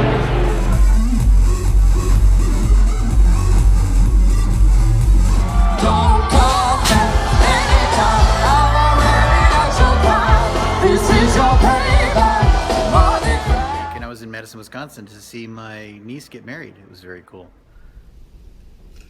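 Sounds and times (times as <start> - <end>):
heavy bass beat: 0.0 - 14.0
person singing pop song: 5.5 - 14.0.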